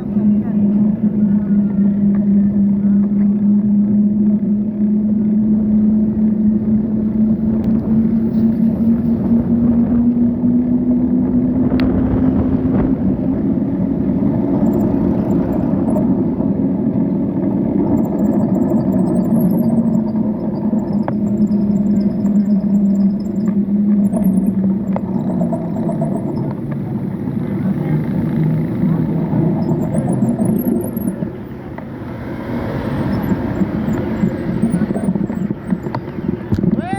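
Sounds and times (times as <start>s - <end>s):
engine drone: 0.0s - 36.9s
road and wind rumble: 0.0s - 36.9s.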